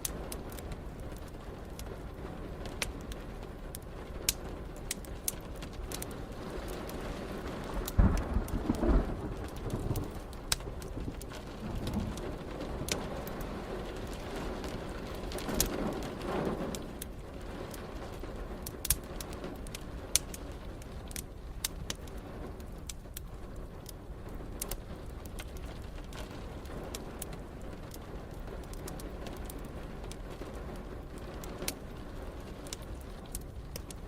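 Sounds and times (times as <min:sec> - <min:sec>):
rain hiss: 0:00.0 - 0:34.0
wood fire crackling: 0:00.0 - 0:34.0
low rumble: 0:07.8 - 0:14.0.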